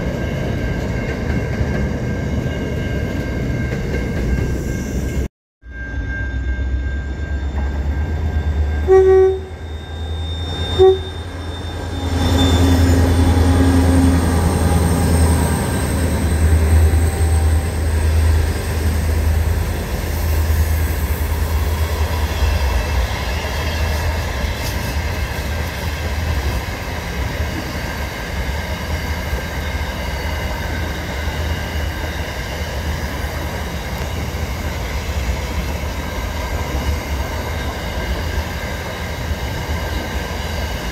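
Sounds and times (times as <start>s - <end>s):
diesel locomotives rumbling: 0.0s - 40.9s
train horn: 8.5s - 18.2s.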